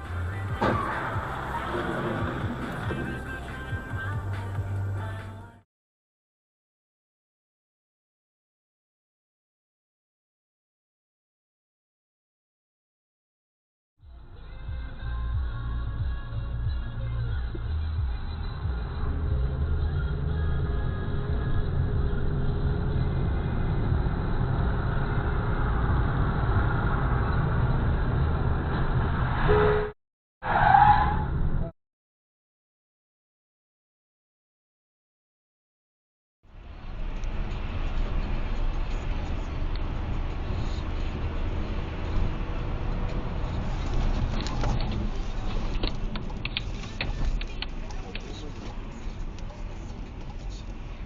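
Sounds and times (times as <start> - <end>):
car engine and road noise: 0.0 - 5.6, 14.0 - 31.7, 36.4 - 51.0
sharp clicks and knocks: 43.9 - 50.5.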